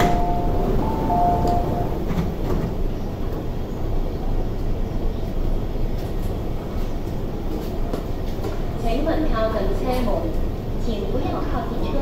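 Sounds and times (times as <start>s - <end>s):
electric train humming: 0.0s - 6.6s.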